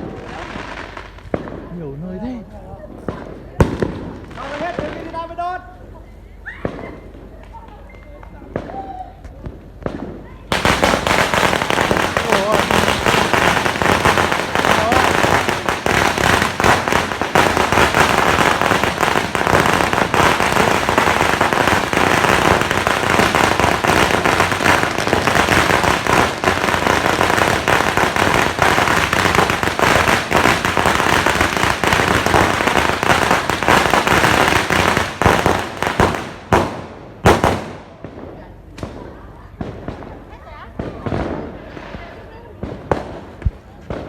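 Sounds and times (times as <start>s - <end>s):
fireworks and firecrackers crackling: 0.0s - 44.0s.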